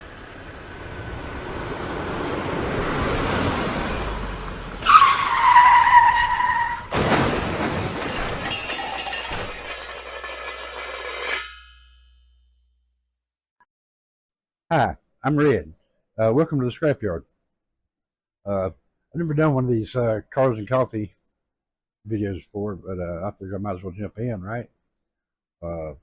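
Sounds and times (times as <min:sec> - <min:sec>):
tire squeal: 0:02.8 - 0:11.6.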